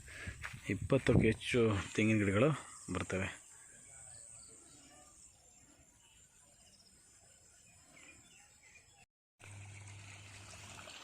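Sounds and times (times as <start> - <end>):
soft bird chirps: 2.0 - 9.1.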